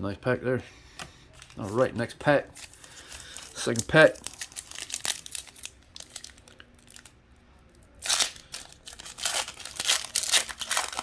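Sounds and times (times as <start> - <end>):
wrapper tearing and crinkling: 2.6 - 7.1, 8.0 - 11.0.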